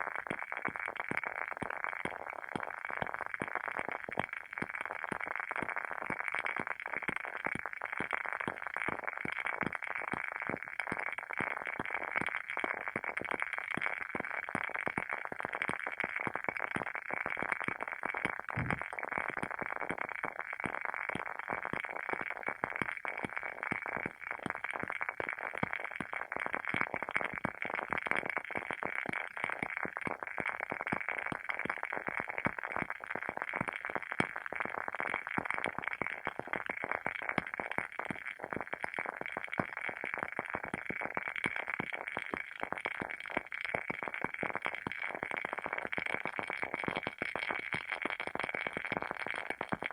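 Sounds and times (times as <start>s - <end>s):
low thump: 18.6s - 18.9s.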